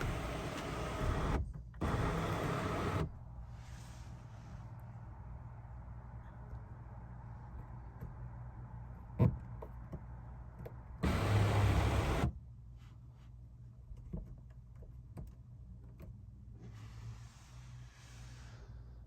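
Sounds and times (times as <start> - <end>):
electric motor whirring: 0.0 - 3.1, 11.0 - 12.3.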